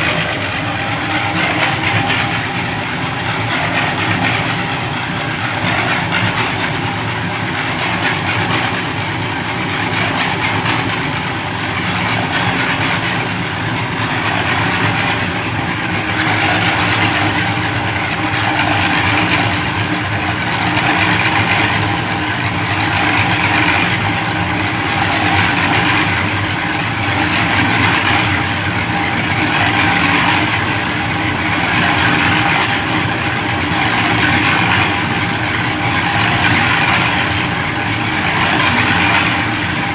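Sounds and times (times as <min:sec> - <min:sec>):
rushing noise: 0:00.0 - 0:22.1
engine running steadily: 0:00.0 - 0:39.9.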